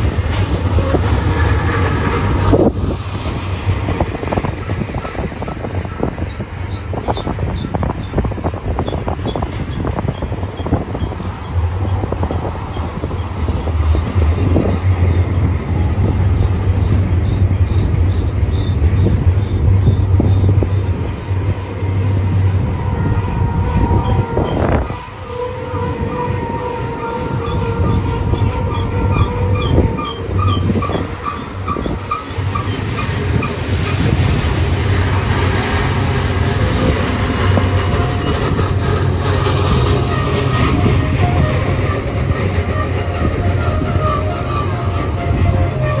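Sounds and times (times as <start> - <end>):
freight train rumble: 0.0 - 46.0
wheels clattering on rails: 0.0 - 46.0
high wheel squeal chirping: 22.9 - 34.1.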